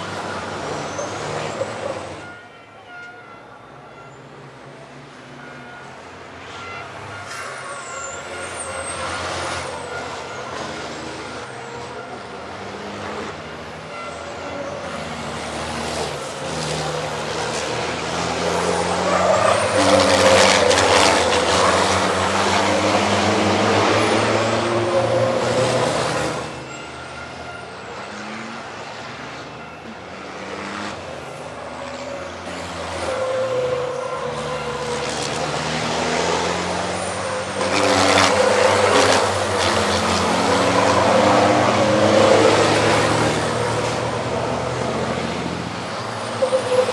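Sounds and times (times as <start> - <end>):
racing truck diesel engines: 0.0 - 46.9.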